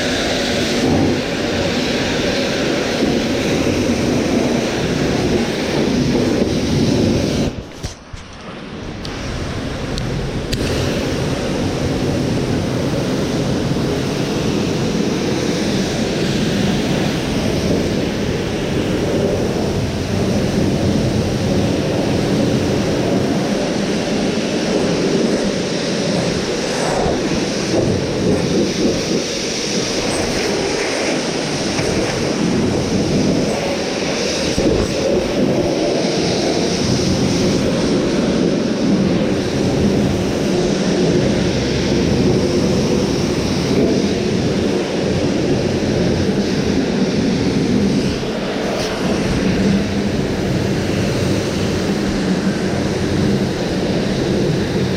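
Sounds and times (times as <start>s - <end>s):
pressure washer spraying: 10.2s - 14.5s.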